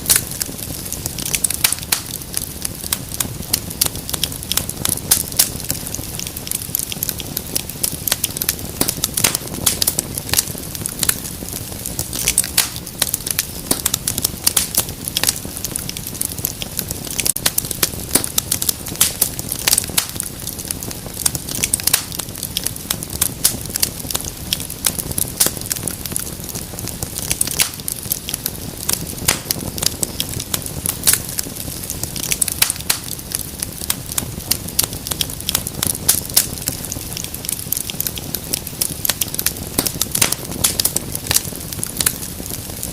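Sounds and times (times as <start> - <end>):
low rumble of flames: 0.0 - 42.9
wood fire crackling: 0.0 - 42.9.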